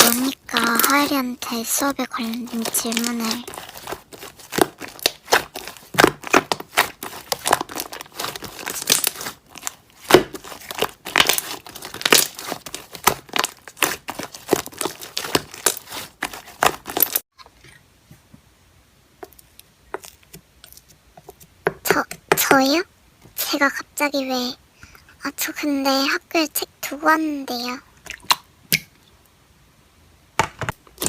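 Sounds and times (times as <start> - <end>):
slime crackling and popping: 0.0 - 17.2.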